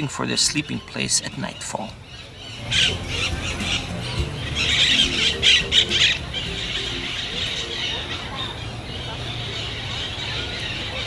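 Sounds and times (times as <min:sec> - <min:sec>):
faint music: 0:00.0 - 0:11.0.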